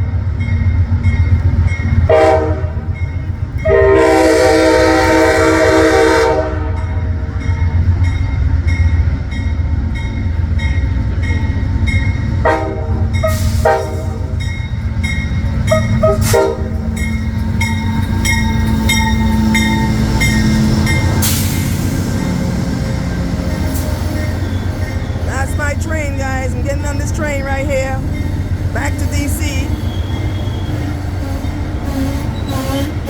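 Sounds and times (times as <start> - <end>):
locomotive bell ringing: 0.0 - 4.4, 6.8 - 32.5
train rumbling: 0.0 - 33.0
train horn: 2.1 - 2.9, 3.6 - 7.0, 12.4 - 14.3, 15.7 - 16.9, 30.2 - 33.0.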